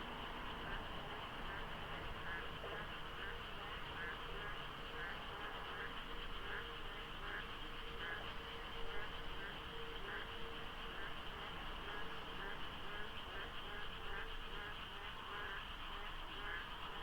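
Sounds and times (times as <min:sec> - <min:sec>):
chorus of frogs calling: 0:00.0 - 0:17.0.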